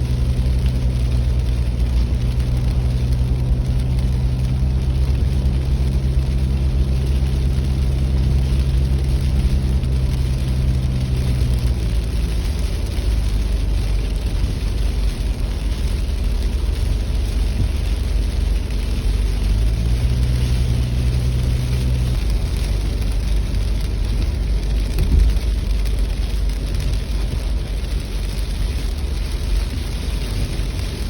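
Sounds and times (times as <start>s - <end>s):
car engine hum: 0.0s - 31.0s
road noise: 0.0s - 31.0s.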